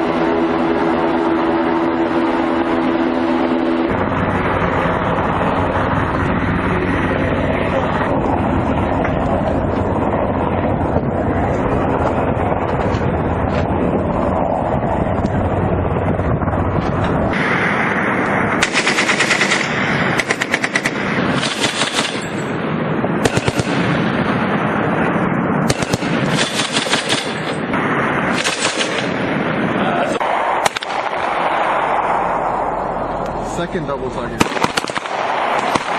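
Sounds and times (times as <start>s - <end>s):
low rumble: 0.0s - 35.9s
machine-gun fire bursts: 18.6s - 22.5s, 23.2s - 24.0s, 25.7s - 27.6s, 28.3s - 29.2s, 34.4s - 35.9s.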